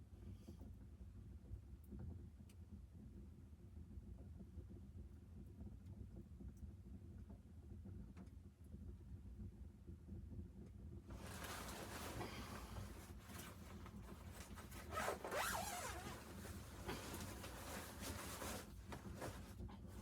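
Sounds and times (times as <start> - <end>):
zipper being pulled: 11.2 - 19.6.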